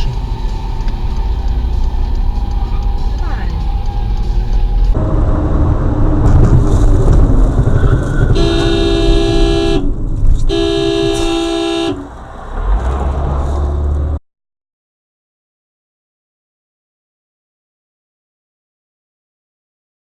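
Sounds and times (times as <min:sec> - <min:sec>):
road and engine noise: 0:00.0 - 0:14.2
vehicle horn blasts: 0:08.3 - 0:09.9, 0:10.5 - 0:12.1.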